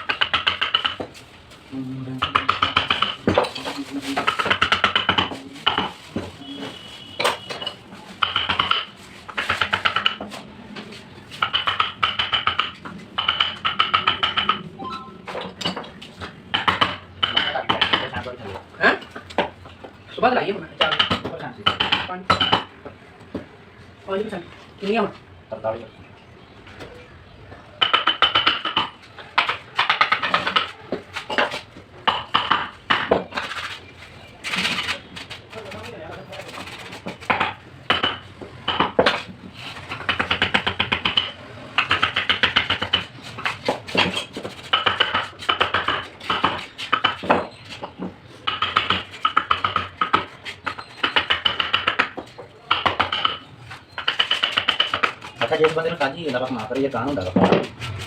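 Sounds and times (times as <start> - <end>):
hammer tapping metal chisel: 35.6 - 56.7.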